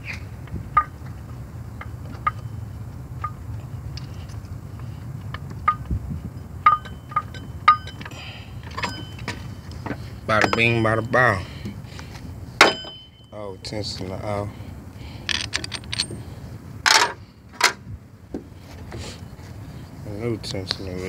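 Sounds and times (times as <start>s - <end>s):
socket and ratchet clinking: 6.6s - 9.5s, 15.2s - 16.2s.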